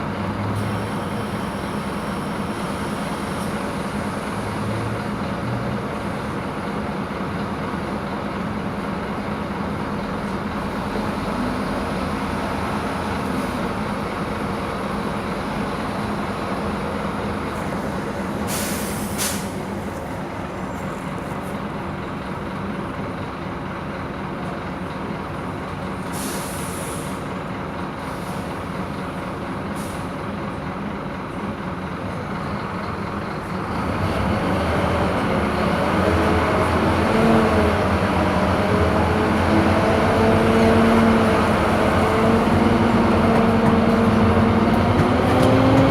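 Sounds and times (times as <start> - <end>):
bus diesel engine running: 0.0 - 45.9
air brakes hissing: 17.7 - 19.8, 26.0 - 27.4, 28.0 - 28.6, 29.7 - 30.2.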